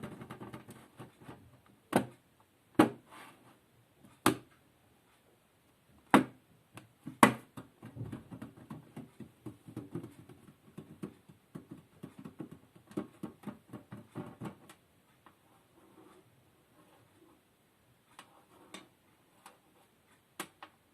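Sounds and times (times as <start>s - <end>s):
light tapping or scratching: 18.1s - 20.7s.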